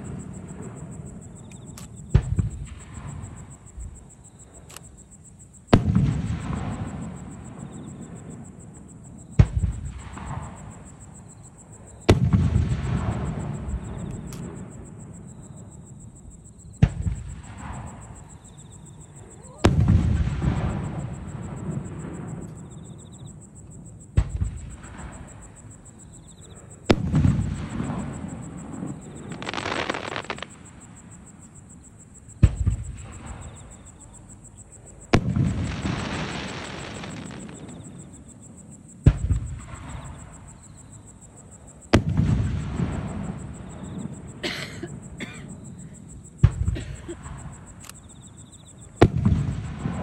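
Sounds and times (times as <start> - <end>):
firework shells booming: 0.0 - 5.1, 5.7 - 11.3, 12.0 - 15.3, 16.8 - 23.4, 24.1 - 31.4, 32.3 - 34.3, 35.0 - 41.0, 41.8 - 48.0, 49.0 - 50.0
hissing crackle: 27.3 - 31.3, 35.2 - 38.2.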